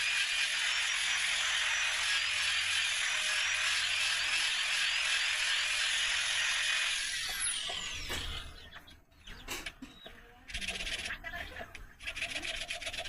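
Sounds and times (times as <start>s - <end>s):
power tool winding down: 0.0s - 8.6s.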